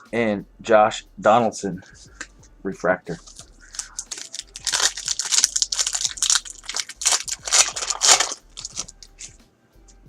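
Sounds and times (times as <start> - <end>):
crinkling card pack wrappers: 3.2 - 9.4.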